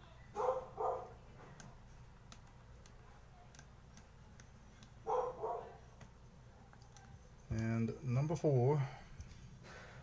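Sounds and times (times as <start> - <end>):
dog barking: 0.4 - 1.2, 5.0 - 5.8.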